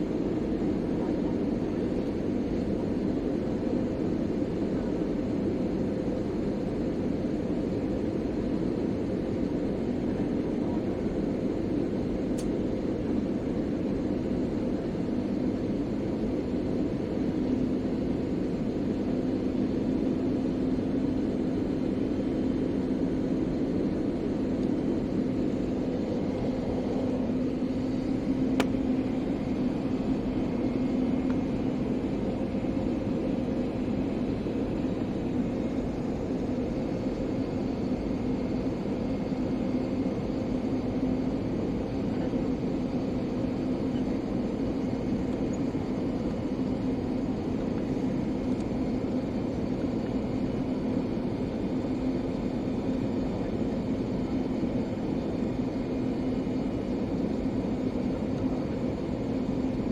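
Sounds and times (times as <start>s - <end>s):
airliner engines: 0.0s - 59.9s
low hum: 16.6s - 42.7s.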